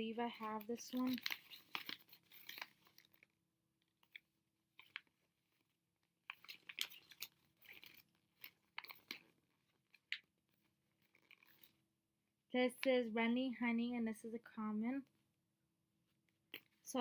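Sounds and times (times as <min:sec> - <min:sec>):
plastic packaging crinkling: 0:06.3 - 0:09.2.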